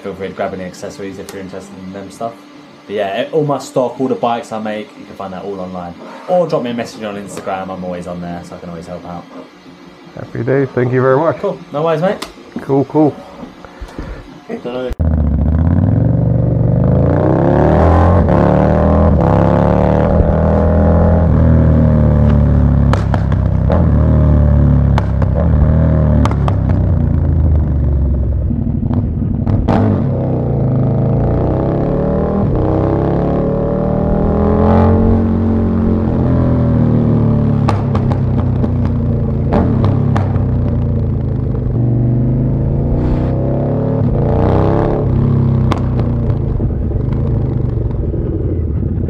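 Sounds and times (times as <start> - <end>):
exhaust cracks: 15.0 - 49.0
motorcycle engine revving: 15.0 - 49.0.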